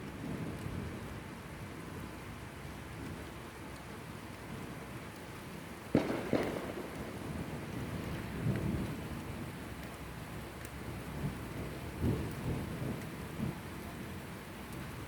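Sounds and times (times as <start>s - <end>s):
steady rain: 0.0s - 15.0s
thunderclap: 5.9s - 7.6s
low rumble of thunder: 5.9s - 15.0s.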